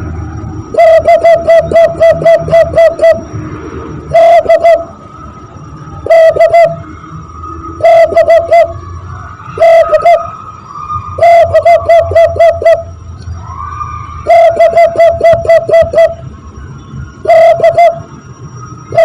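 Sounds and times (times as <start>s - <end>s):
faint steady high tone: 0.0s - 19.0s
hand-blown dove cooing imitation: 0.7s - 3.2s, 4.1s - 4.9s, 6.0s - 6.8s, 7.8s - 8.8s, 9.6s - 10.2s, 11.2s - 12.8s, 14.3s - 16.2s, 17.2s - 18.0s.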